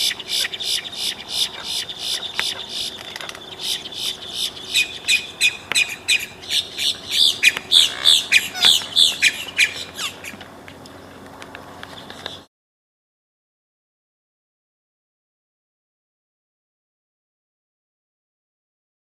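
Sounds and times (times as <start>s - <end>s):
birds giving sharp calls: 0.0s - 10.4s.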